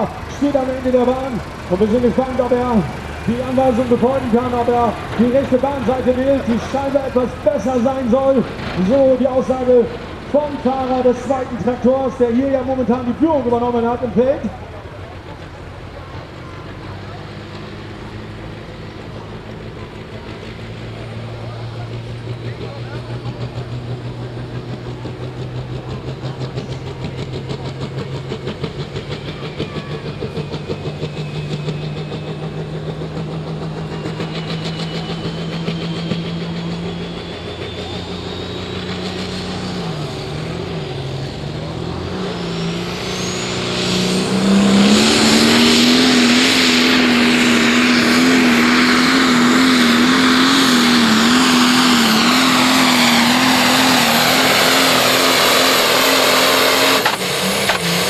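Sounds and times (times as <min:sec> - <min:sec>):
diesel engine revving: 0:00.0 - 0:58.0
whine rising in pitch: 0:28.6 - 0:58.0.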